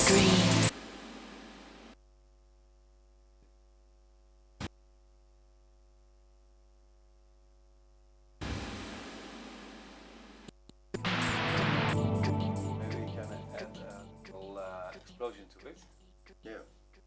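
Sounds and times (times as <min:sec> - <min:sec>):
electronic trance music: 0:00.0 - 0:00.7, 0:11.0 - 0:15.4
faint mains hum: 0:00.0 - 0:17.0.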